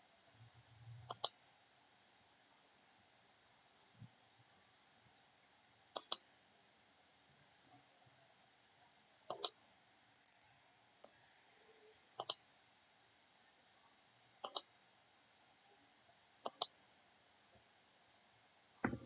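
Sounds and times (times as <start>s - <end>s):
mouse button double-clicks: 9.3s - 9.5s, 14.4s - 14.7s.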